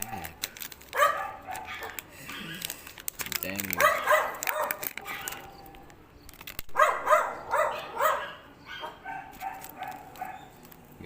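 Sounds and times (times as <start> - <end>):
dog barking: 0.9 - 2.0, 3.8 - 5.6, 6.8 - 10.5
dog whining: 3.8 - 5.8.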